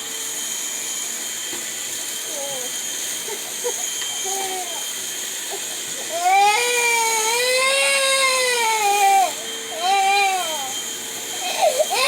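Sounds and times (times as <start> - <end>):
vacuum cleaner humming: 0.0 - 12.0
infant crying: 3.3 - 10.8, 11.4 - 12.0.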